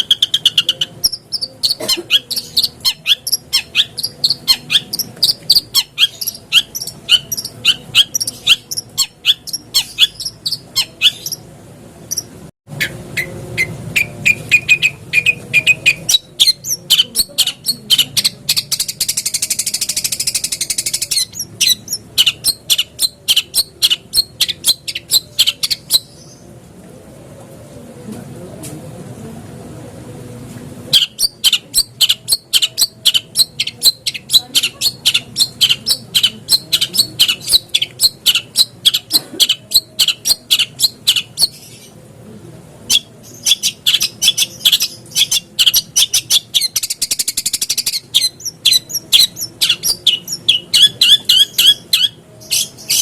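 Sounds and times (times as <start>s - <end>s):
bird high chipping notes: 0.0s - 11.5s.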